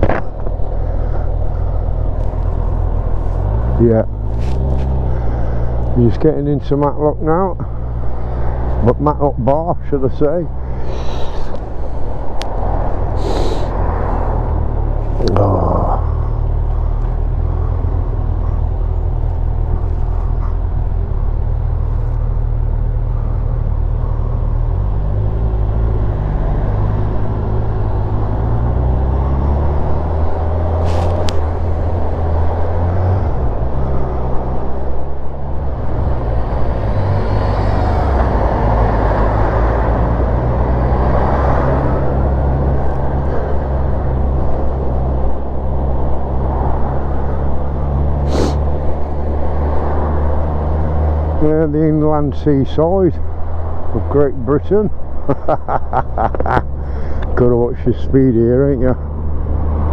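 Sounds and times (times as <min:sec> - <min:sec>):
motorcycle engine accelerating: 0:00.0 - 0:06.0
wind and road noise: 0:00.0 - 0:59.9.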